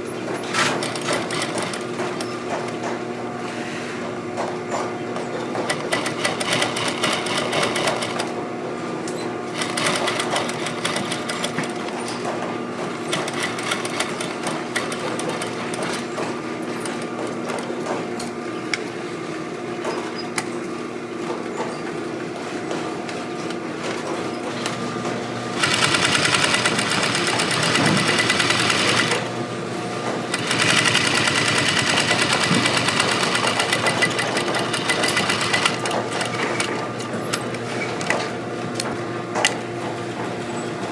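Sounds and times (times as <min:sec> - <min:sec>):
sewing machine stitching rapidly: 0:00.5 - 0:02.7, 0:05.5 - 0:08.3, 0:09.5 - 0:12.2, 0:12.9 - 0:17.6, 0:25.5 - 0:29.3, 0:30.3 - 0:37.5.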